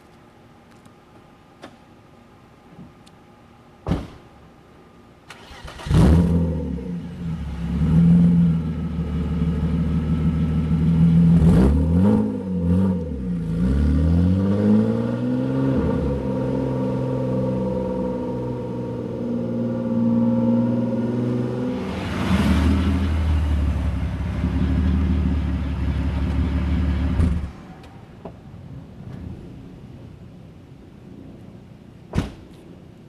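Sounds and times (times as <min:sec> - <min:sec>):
car engine cranking and running: 0:05.3 - 0:06.5.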